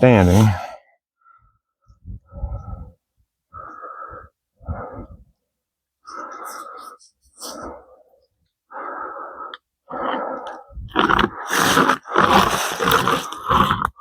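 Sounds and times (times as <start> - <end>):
hand saw rasping through wood: 11.4 - 13.8.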